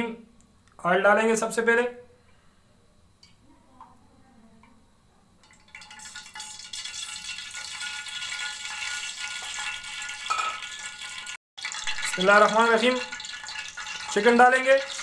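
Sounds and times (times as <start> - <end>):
oil sizzling in a pan: 5.4 - 15.0.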